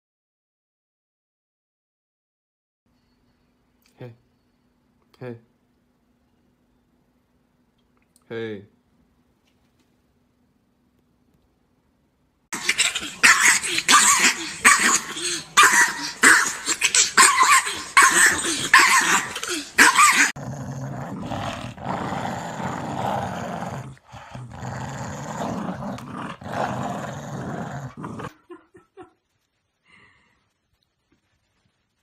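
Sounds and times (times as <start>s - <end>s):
dog barking and growling: 12.5s - 29.1s.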